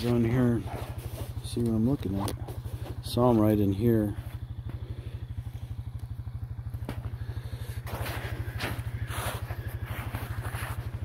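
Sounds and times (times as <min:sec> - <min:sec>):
quad engine idling: 0:00.0 - 0:11.0.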